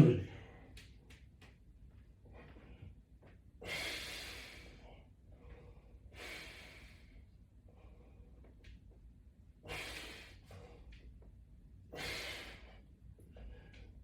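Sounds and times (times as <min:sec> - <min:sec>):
man breathing hard: 0:03.6 - 0:08.6, 0:09.6 - 0:11.2, 0:11.9 - 0:14.0.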